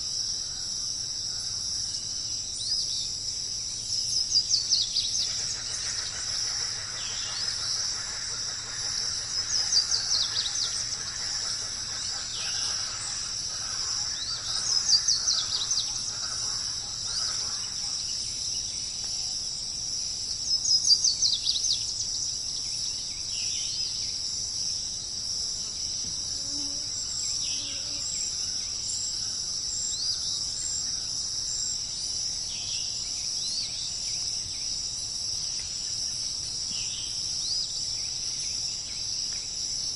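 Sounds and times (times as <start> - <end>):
high-pitched insect trill: 0.0 - 39.9
faint downslurred bird calls: 4.8 - 18.2.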